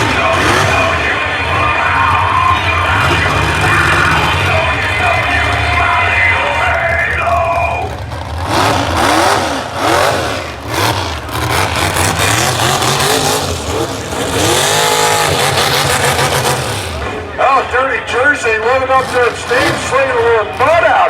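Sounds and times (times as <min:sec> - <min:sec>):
heavy low rumble: 0:00.0 - 0:20.8
truck engine revving: 0:00.0 - 0:21.0.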